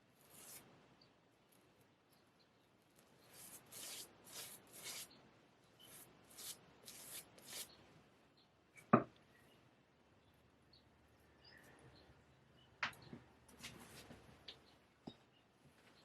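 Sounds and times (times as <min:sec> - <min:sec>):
razor scraping stubble: 0:00.2 - 0:00.6, 0:03.2 - 0:05.1, 0:05.8 - 0:07.7.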